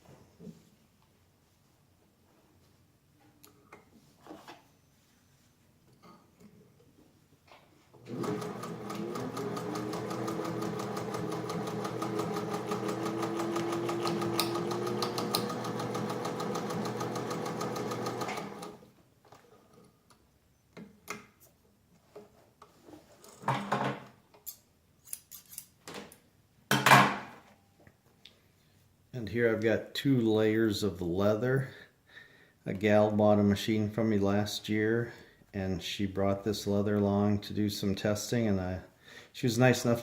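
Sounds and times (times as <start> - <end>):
sewing machine running: 8.0 - 18.8.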